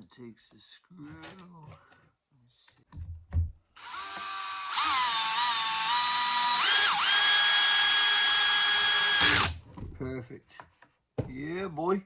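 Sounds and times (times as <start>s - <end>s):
drill-driver motor whine: 3.8s - 9.6s.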